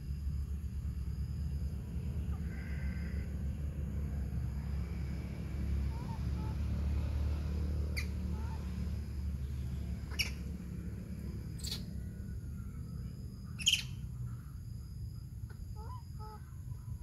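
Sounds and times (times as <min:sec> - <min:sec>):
steady low rumble: 0:00.0 - 0:17.0
sharp high bird chirps: 0:07.8 - 0:08.5, 0:10.0 - 0:10.5, 0:11.5 - 0:12.0, 0:13.4 - 0:14.1.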